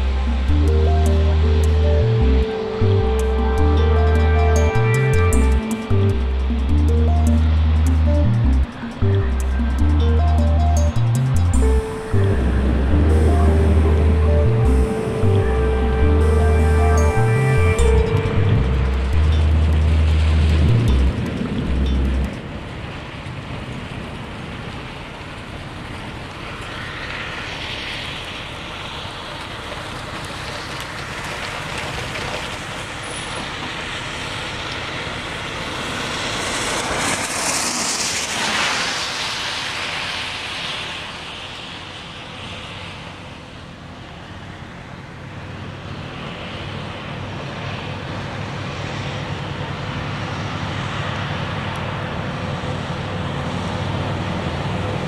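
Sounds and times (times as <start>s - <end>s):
low rumble: 0.0s - 23.0s
vehicle passing: 0.0s - 23.0s
road traffic hiss: 0.0s - 55.0s.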